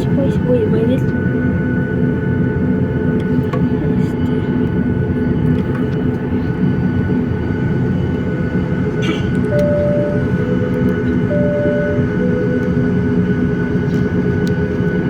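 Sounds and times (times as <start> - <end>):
vehicle interior rumble and hum: 0.0 - 15.0
short steady beep: 9.6 - 13.2.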